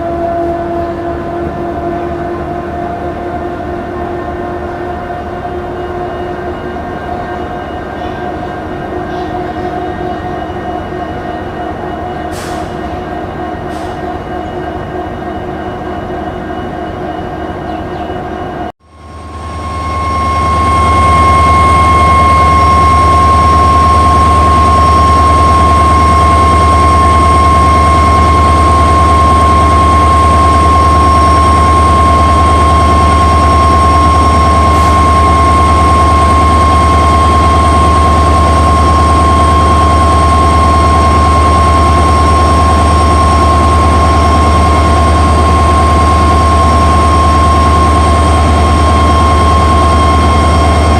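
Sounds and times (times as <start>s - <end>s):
locomotive engine deep hum: 0.0s - 10.8s
steady high whine: 14.2s - 50.9s.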